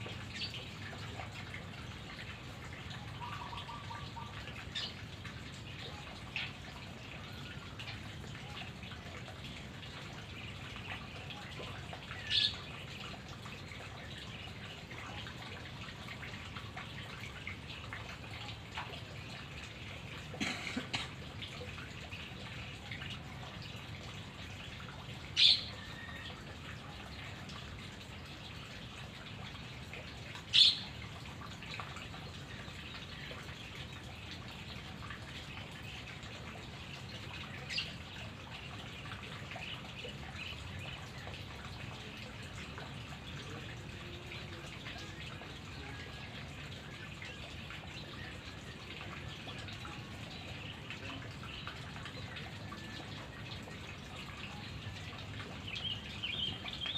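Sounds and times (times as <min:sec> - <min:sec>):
bird calls: 0:25.4 - 0:26.3, 0:30.5 - 0:30.9.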